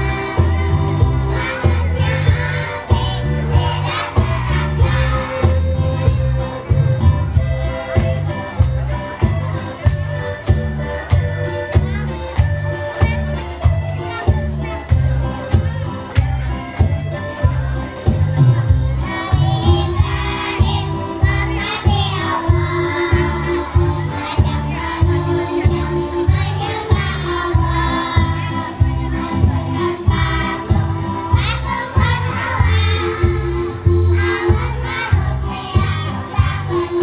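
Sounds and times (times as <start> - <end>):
children's choir singing: 0.0 - 9.9, 18.0 - 37.0
backing music with steady beat: 0.0 - 37.0.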